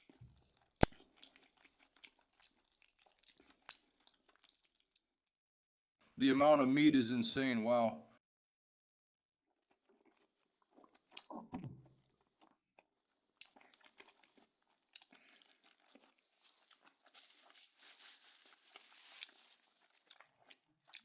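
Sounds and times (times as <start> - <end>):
person chewing food: 0.0 - 5.1, 9.5 - 21.0.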